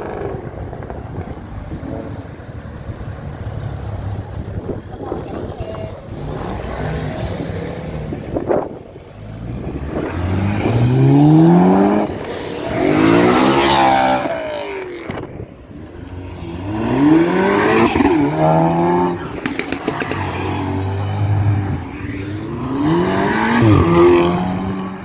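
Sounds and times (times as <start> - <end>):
cars accelerating hard: 6.1 - 25.0.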